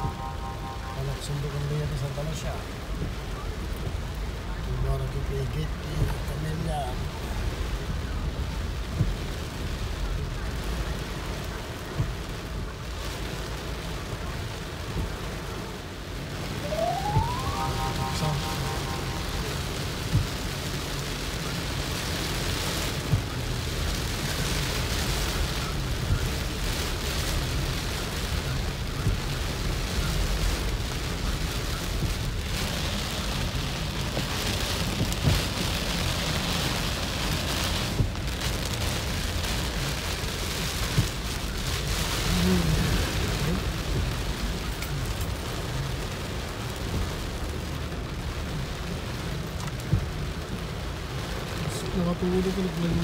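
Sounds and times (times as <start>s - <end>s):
heavy rain on car roof: 0.0s - 53.0s
low rumble: 17.3s - 20.6s.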